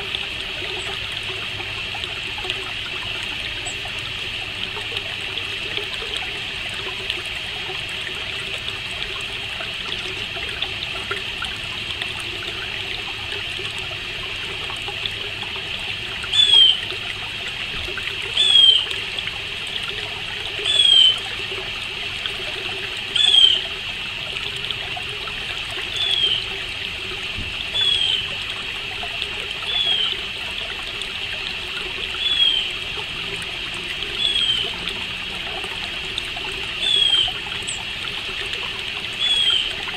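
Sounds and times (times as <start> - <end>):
trickling water hiss: 0.0 - 39.9.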